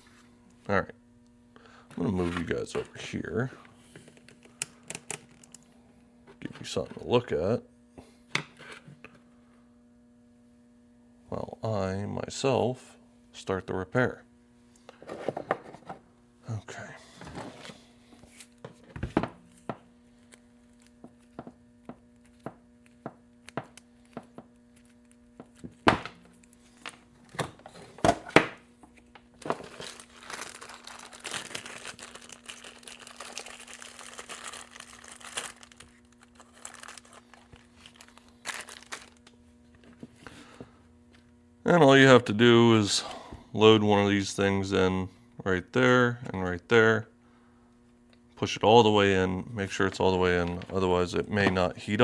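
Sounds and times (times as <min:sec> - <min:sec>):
plastic packaging crinkling: 0:04.2 - 0:05.6, 0:29.3 - 0:39.5.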